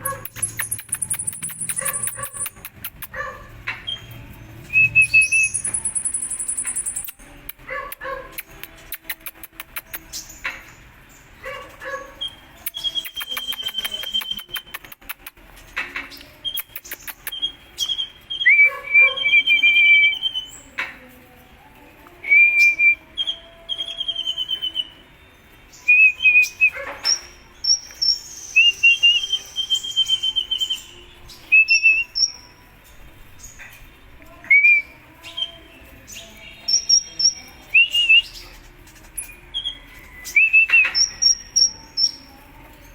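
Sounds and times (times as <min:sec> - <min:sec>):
sunbird singing chirps and trills: 0:00.0 - 0:03.1, 0:03.8 - 0:07.3, 0:22.7 - 0:42.9.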